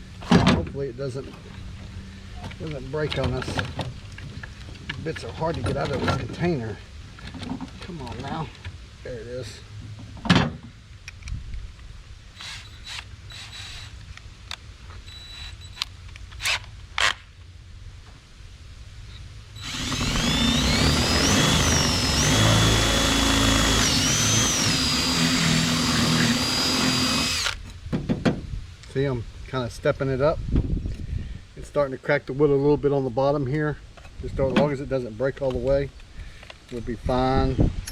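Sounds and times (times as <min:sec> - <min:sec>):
power drill boring into wood: 0:12.4 - 0:14.0, 0:15.1 - 0:15.8, 0:19.6 - 0:27.6.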